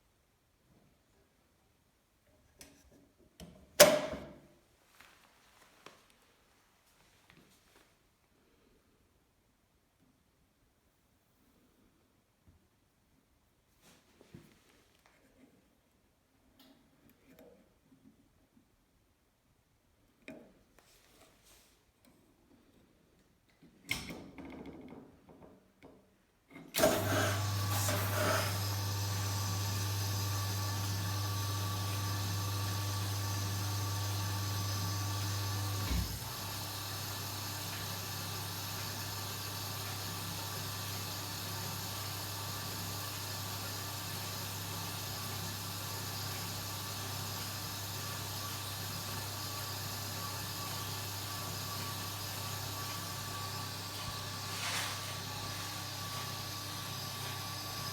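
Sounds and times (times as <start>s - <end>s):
washing machine hum: 26.8s - 57.9s.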